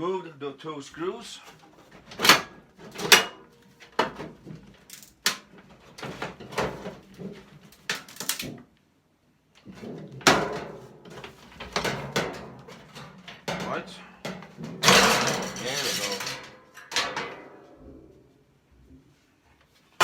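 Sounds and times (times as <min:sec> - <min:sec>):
sheet metal parts clanking: 0:01.9 - 0:05.3, 0:09.7 - 0:18.0.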